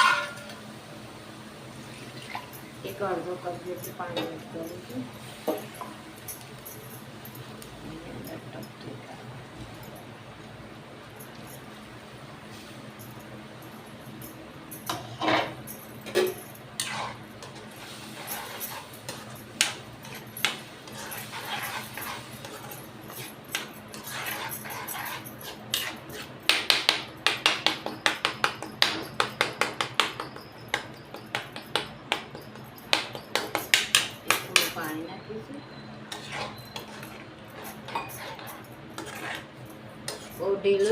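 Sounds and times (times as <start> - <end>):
spoon scraping cooking pot: 16.8 - 26.4, 36.1 - 40.9
spoon tapping pot: 26.5 - 34.9.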